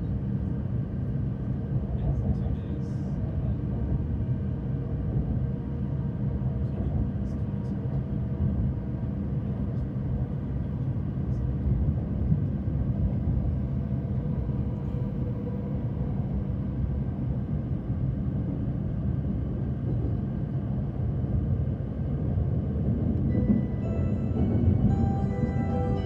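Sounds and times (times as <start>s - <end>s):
train wheels rumbling: 22.8s - 26.0s
melody of held tones: 23.4s - 26.0s.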